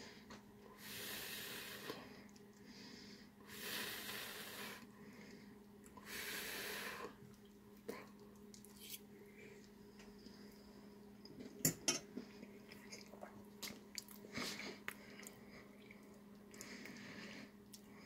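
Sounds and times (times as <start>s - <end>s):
steady low hum: 0.0s - 18.0s
faint chewing: 7.1s - 18.0s.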